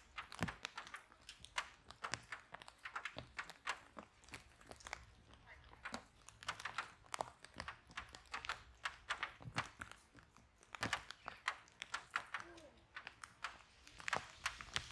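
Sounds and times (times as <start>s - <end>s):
wood fire crackling and popping: 0.0s - 14.9s.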